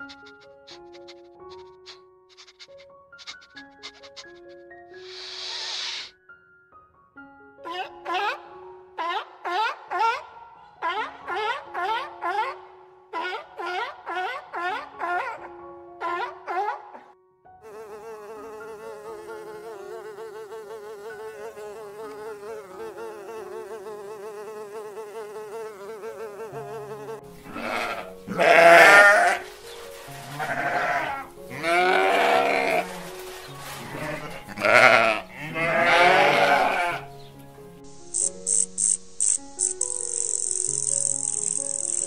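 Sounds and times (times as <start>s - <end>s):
bee buzzing: 0.0s - 6.1s, 17.6s - 29.5s, 37.8s - 42.0s
sheep bleating: 27.4s - 29.5s, 30.2s - 33.0s, 33.8s - 37.1s.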